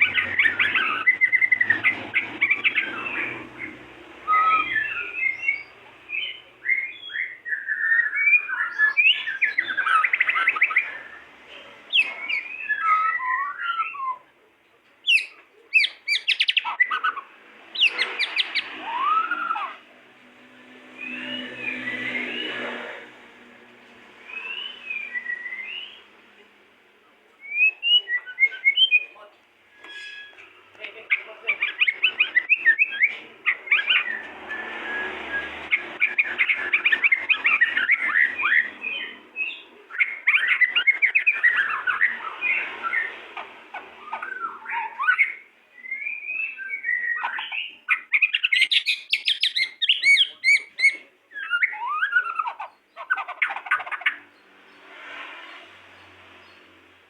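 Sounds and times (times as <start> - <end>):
rapid bird chattering: 0.0 - 7.4, 15.0 - 19.8, 30.8 - 34.2, 35.7 - 45.4, 47.0 - 54.2
birds singing whistled phrases: 0.0 - 11.2, 11.9 - 14.3, 15.0 - 19.8, 20.9 - 22.8, 24.2 - 26.1, 27.4 - 29.2, 31.1 - 54.9.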